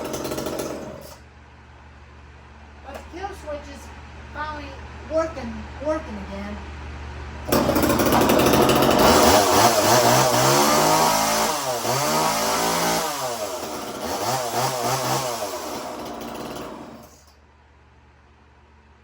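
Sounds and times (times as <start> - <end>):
chainsaw revving: 0.0 - 1.2, 7.5 - 17.3.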